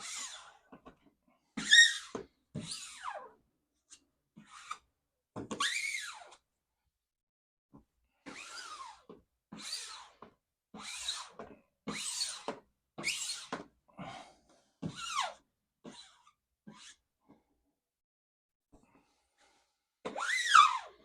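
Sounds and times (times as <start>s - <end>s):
squeegee squeaking on wet vinyl: 1.6s - 3.2s, 5.6s - 6.3s, 9.5s - 10.1s, 10.7s - 13.6s, 15.0s - 17.0s, 20.1s - 20.9s.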